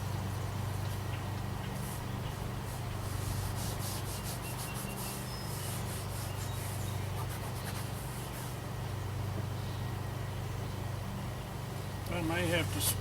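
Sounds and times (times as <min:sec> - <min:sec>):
steady low hum: 0:00.0 - 0:13.0
fabric rubbing and rustling: 0:01.8 - 0:08.6.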